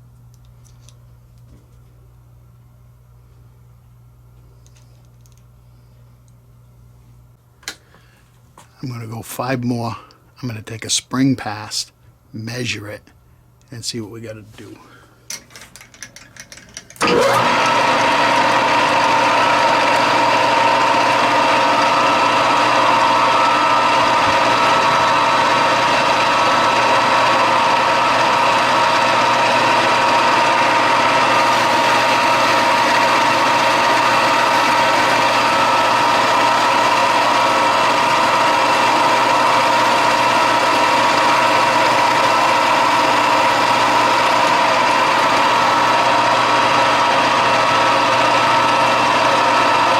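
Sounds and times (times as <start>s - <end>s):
metal lathe whining: 16.4s - 49.9s.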